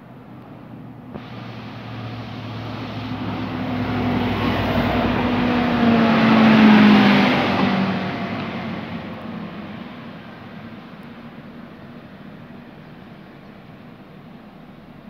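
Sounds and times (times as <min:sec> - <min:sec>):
train passing by: 0:00.1 - 0:15.0.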